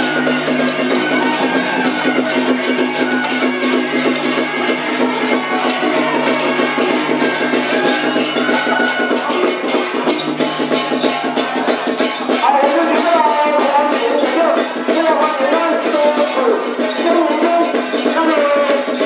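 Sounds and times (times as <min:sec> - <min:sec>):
fast dense percussion: 0:00.0 - 0:19.0.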